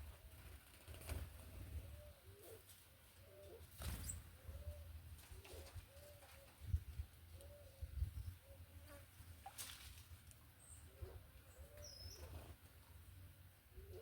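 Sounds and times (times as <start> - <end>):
doves cooing: 13.7 - 14.0.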